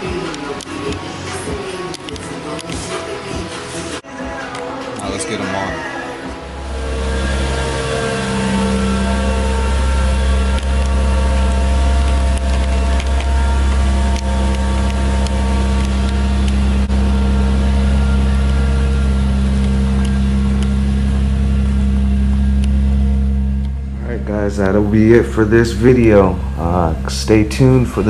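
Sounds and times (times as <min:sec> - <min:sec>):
engine droning steadily: 0:06.2 - 0:28.0.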